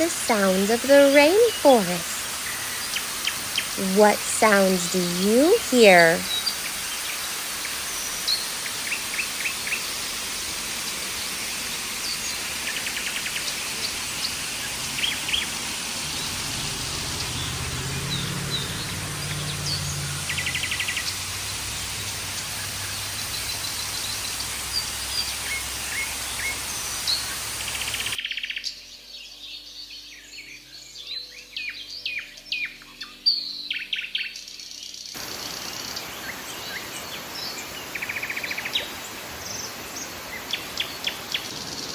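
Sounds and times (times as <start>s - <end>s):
dense high hiss: 0.0s - 28.2s, 35.2s - 41.9s
birds chirping and calling: 10.8s - 28.2s.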